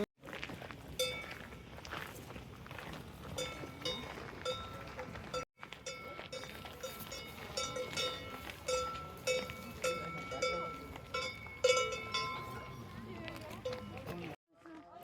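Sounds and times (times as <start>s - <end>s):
cowbells clanking: 1.0s - 1.6s, 3.3s - 14.4s.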